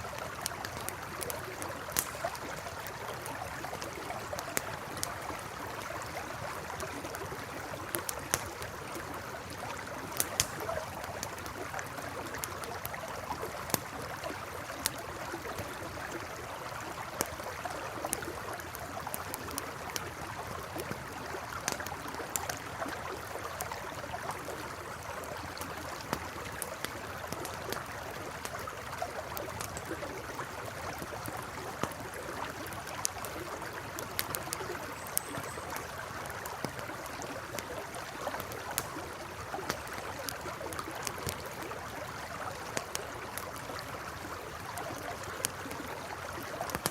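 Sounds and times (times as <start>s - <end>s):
campfire crackling and popping: 0.0s - 46.9s
river rushing and burbling: 30.6s - 46.9s.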